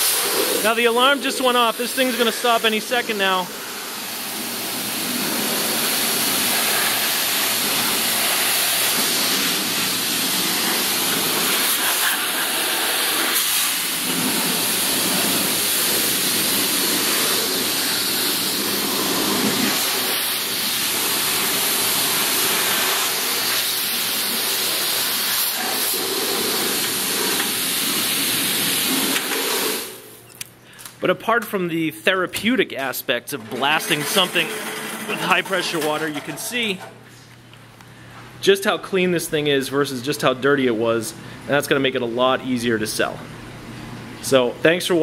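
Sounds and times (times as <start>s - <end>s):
pressure washer spraying water: 0.0s - 30.2s, 33.4s - 36.5s.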